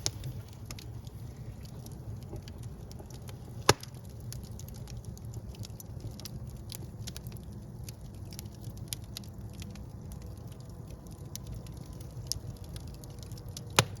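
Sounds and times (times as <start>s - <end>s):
fire crackles and pops: 0.0s - 14.0s
fire flames rumbling: 0.0s - 14.0s.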